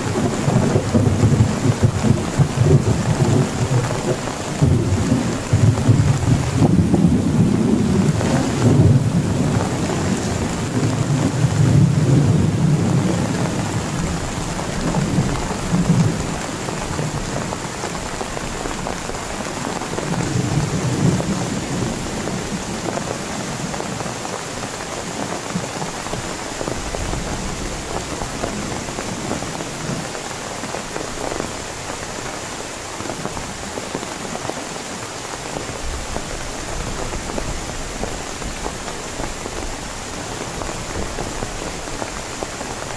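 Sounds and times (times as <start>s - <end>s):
thunder rumbling: 0.0s - 24.1s
heavy rain falling: 0.0s - 42.9s.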